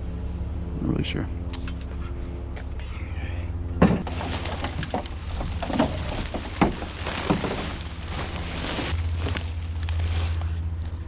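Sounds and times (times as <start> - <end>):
steady low hum: 0.0 - 11.0
scrap metal clanking: 3.8 - 9.7.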